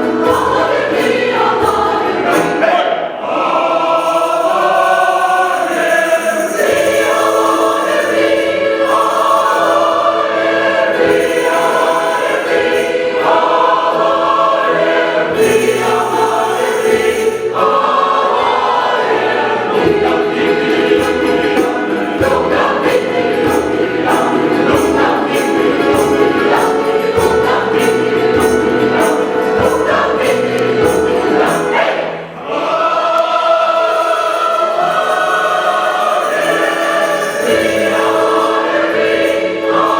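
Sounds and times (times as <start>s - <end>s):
choir singing in harmony: 0.0s - 39.9s
instrumental accompaniment: 0.0s - 39.9s
percussive beat: 19.7s - 31.9s.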